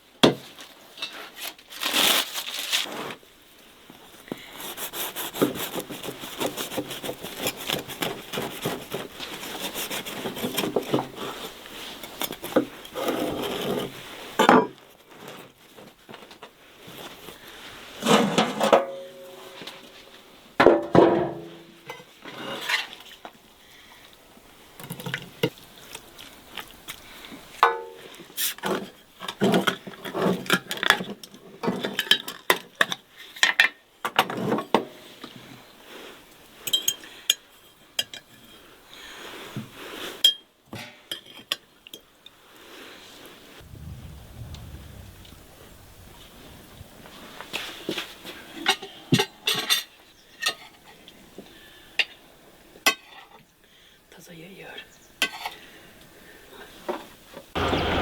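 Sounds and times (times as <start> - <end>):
dishes and utensils clinking: 27.6 - 28.1.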